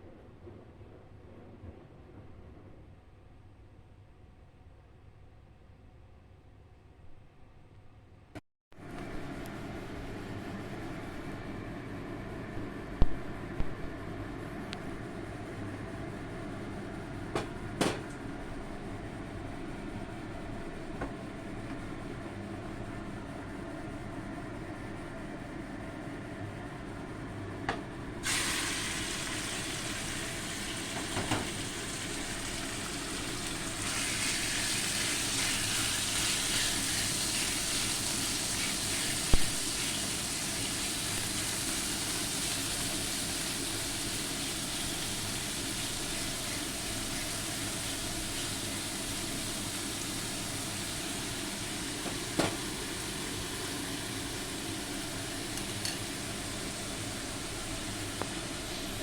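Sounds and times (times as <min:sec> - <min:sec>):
food sizzling in hot oil: 0:28.2 - 0:59.0
utensil knocking on pan: 0:52.0 - 0:52.6.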